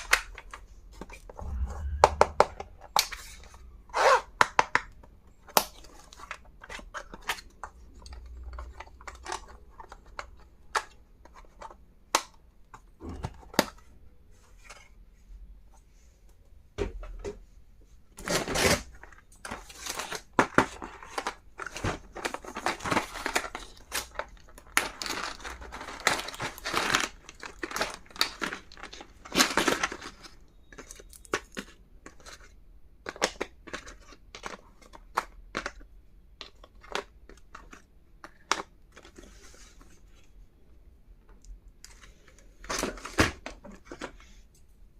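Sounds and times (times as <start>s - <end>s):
wrapping crinkling and tearing: 18.2s - 35.8s.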